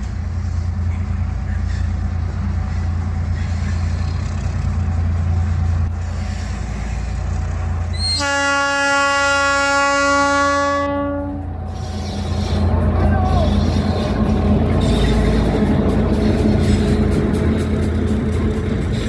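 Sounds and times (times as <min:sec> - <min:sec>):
diesel locomotives rumbling: 0:00.0 - 0:19.0
locomotive air horn blast: 0:08.0 - 0:12.6.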